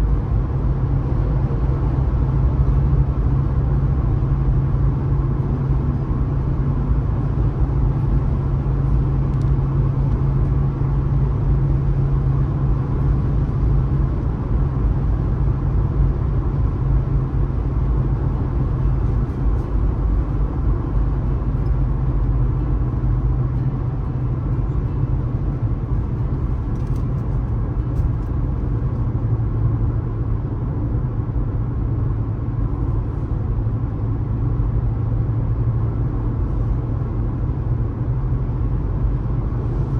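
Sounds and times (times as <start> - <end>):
car engine drone: 0.0 - 39.9
tyre and road noise: 0.0 - 39.9.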